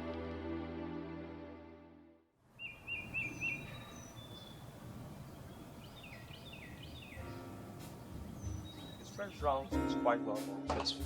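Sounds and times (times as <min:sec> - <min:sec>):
soft music: 0:00.0 - 0:02.2, 0:06.9 - 0:11.0
birds chirping: 0:02.5 - 0:09.8.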